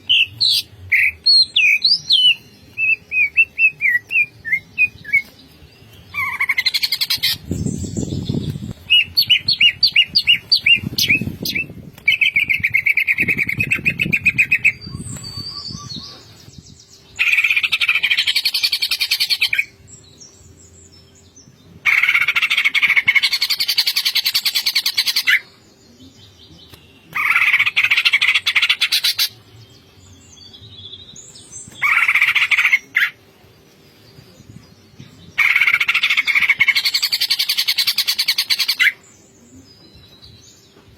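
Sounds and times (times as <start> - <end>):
bird singing chattering notes: 6.0 - 19.8.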